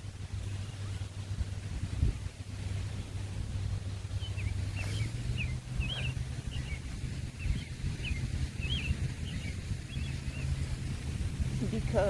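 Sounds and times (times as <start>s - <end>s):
low hum and rumble: 0.0s - 12.0s
small birds chirping: 4.0s - 12.0s.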